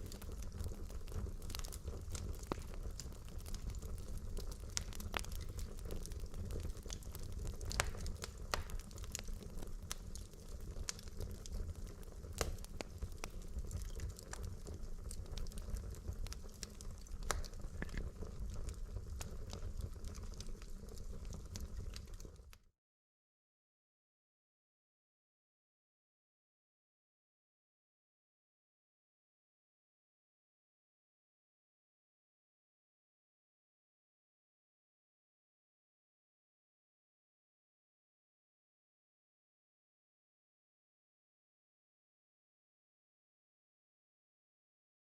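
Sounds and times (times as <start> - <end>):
fire low rumble: 0.0 - 22.7
logs crackling and popping: 0.0 - 22.7.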